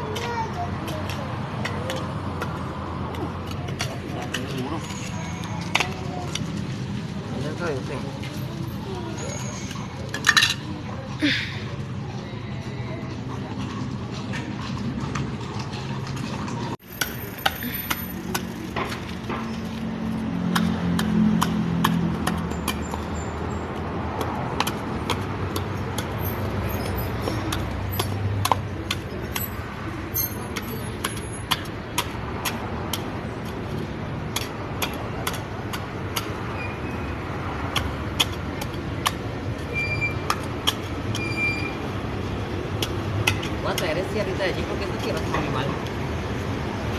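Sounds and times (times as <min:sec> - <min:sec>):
sharp clicks and knocks: 0:37.6 - 0:41.4.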